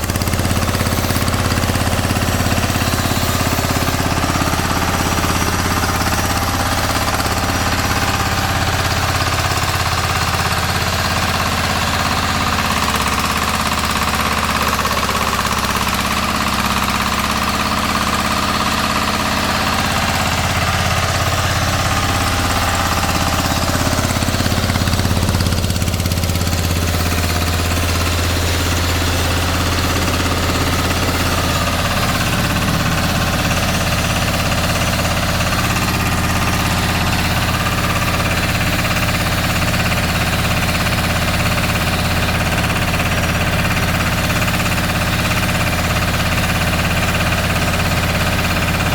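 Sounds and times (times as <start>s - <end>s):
pellet mill droning and rattling: 0.0s - 48.9s.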